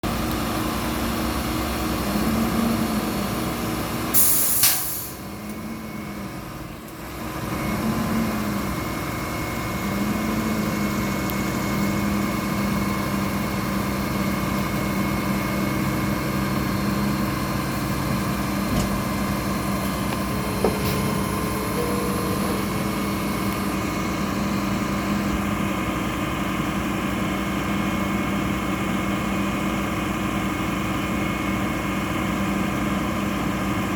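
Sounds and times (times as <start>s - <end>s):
garbage truck diesel engine revving: 0.0s - 33.9s
air brake hiss: 4.2s - 5.2s.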